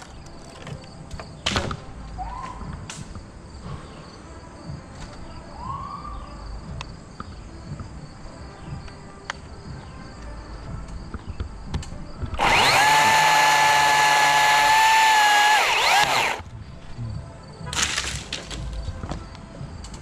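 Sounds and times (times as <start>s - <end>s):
chainsaw high-pitched whine: 12.4s - 16.4s.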